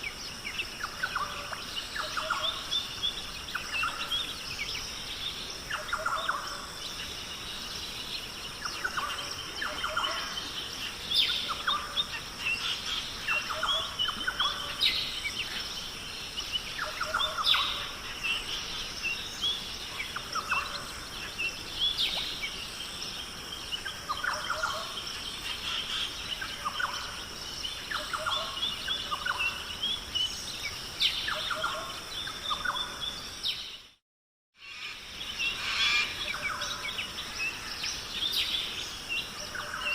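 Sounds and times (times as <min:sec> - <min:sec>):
birds calling: 0:00.0 - 0:33.6, 0:34.6 - 0:39.9.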